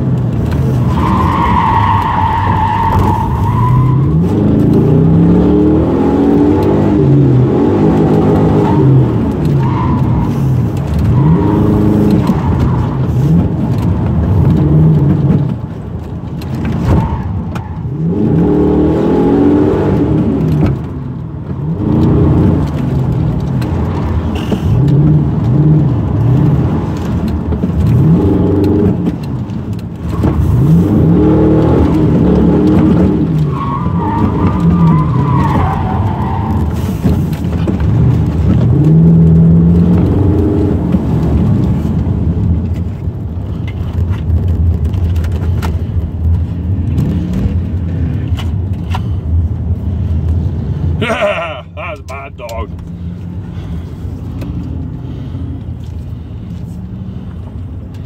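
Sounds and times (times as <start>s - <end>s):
car engine revving: 0.0s - 57.8s
tyre squeal: 0.9s - 4.2s, 33.4s - 37.1s.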